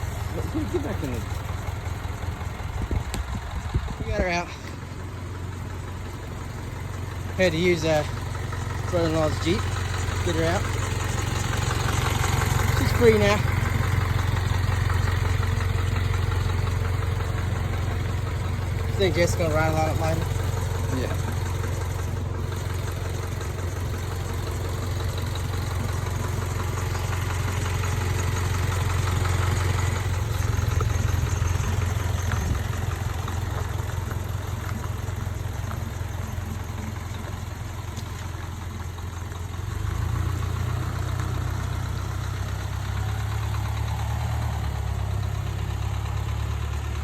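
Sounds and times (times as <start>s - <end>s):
vehicle engine idling: 0.0s - 47.0s.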